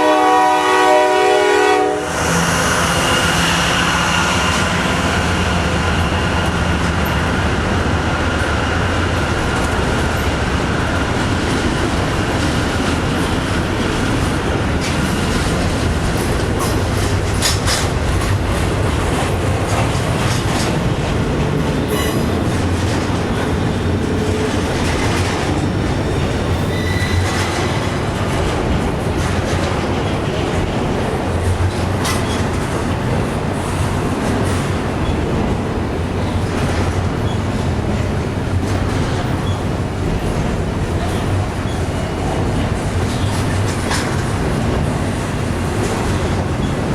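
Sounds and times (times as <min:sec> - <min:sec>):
freight train rumbling past: 0:00.0 - 0:46.9
wheels clanking over rail joints: 0:08.8 - 0:46.9
high wheel squeal: 0:23.3 - 0:27.8.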